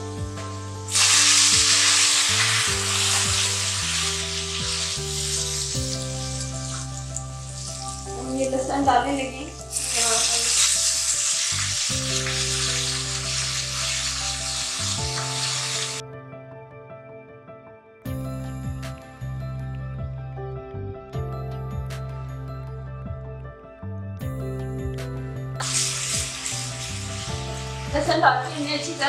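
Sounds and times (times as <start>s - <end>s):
onions and spices sizzling: 0.0s - 16.0s, 25.6s - 29.0s
soft background melody: 0.0s - 29.0s.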